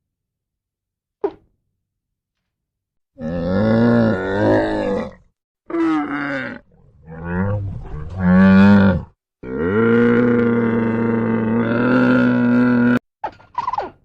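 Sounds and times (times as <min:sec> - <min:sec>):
cow mooing: 0:03.2 - 0:13.0.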